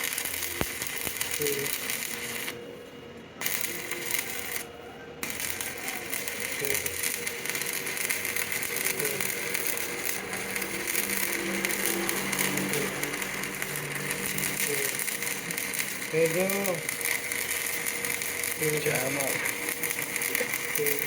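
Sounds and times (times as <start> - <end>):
lathe running: 3.4 - 21.0.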